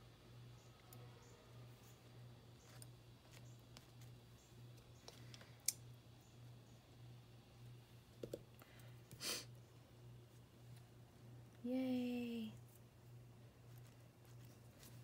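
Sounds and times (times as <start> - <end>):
low electrical hum: 0.0 - 15.0
person speaking: 11.6 - 12.7.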